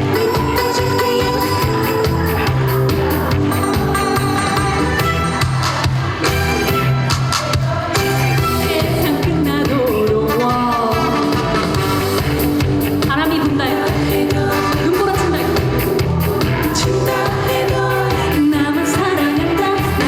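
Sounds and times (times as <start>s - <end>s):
woman singing with vibrato: 0.0s - 5.4s, 7.4s - 11.8s, 13.0s - 15.7s, 16.5s - 20.0s
band accompaniment with steady beat: 0.0s - 20.0s.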